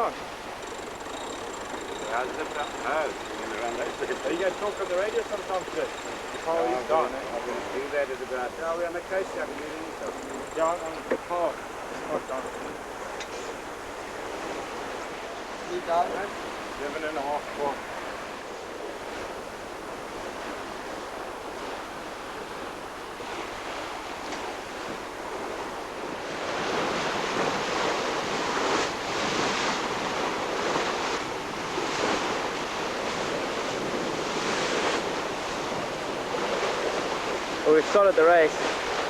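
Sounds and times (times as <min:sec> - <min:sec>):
water splashing along hull: 0:00.0 - 0:39.0
wind buffeting microphone: 0:00.2 - 0:16.8, 0:17.8 - 0:37.7.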